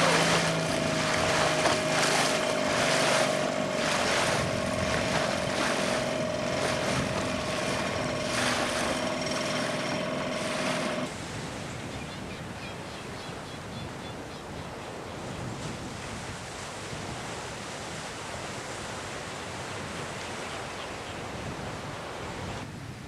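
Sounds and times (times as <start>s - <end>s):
constant hum: 0.0s - 11.1s
engine running steadily: 0.0s - 11.4s
loud rushing wind or water: 0.0s - 23.0s.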